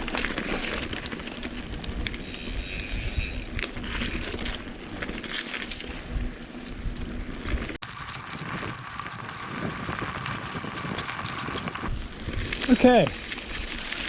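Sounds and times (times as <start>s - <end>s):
bike tyre and drivetrain noise: 0.0s - 14.0s
bike rattling clicks and knocks: 7.5s - 11.9s.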